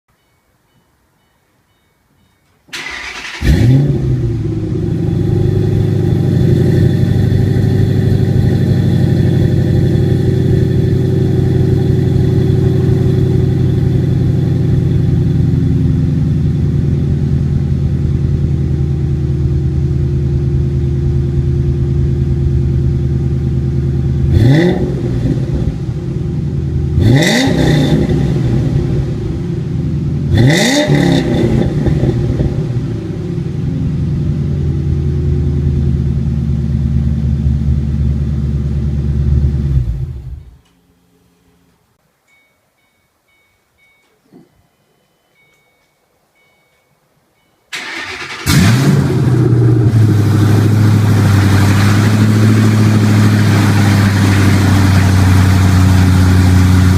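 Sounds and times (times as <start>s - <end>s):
car engine starting and idling: 2.7s - 40.7s, 47.7s - 56.9s
engine revving: 2.8s - 15.1s, 23.9s - 26.2s, 26.8s - 29.5s, 30.3s - 33.6s, 47.8s - 56.9s.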